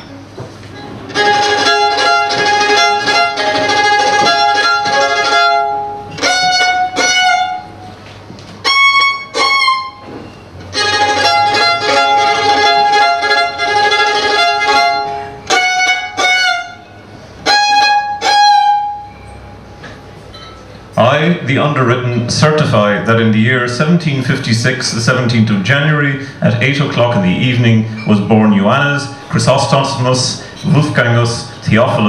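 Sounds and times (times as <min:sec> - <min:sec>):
bowed string instrument playing: 0:00.8 - 0:19.7.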